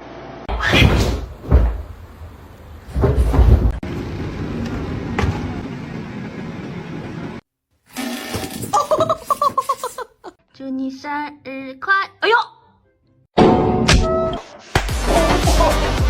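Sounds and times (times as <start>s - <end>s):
dull thuds and knocks: 0.8s - 2.0s, 2.9s - 3.8s.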